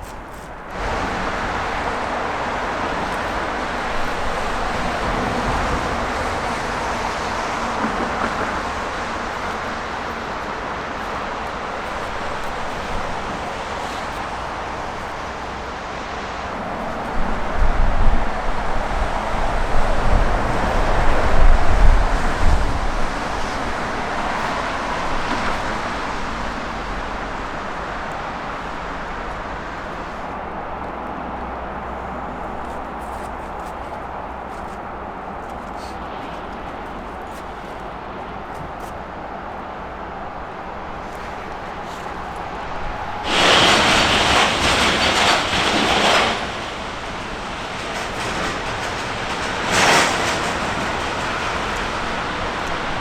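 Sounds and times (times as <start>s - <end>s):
low rumbling gusts: 0.0s - 53.0s
jet engine roar: 39.5s - 53.0s.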